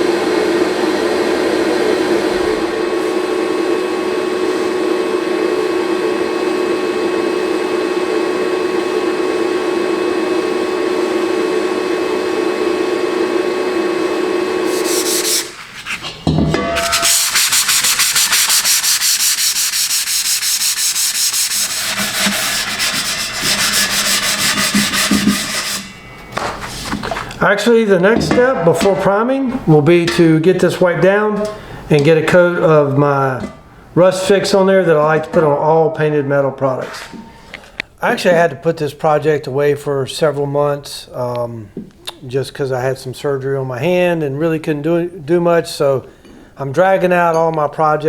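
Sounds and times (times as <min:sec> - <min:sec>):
power tool whine: 0:00.0 - 0:15.6, 0:16.8 - 0:26.1
abrasive scraping on metal: 0:14.7 - 0:27.1.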